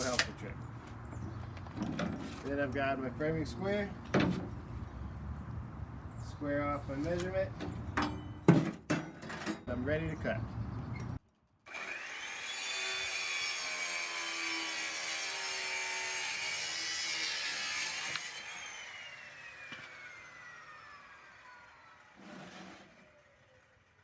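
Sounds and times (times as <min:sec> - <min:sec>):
circular saw cutting: 0:11.7 - 0:23.6
saw blade spinning down whine: 0:18.2 - 0:23.9.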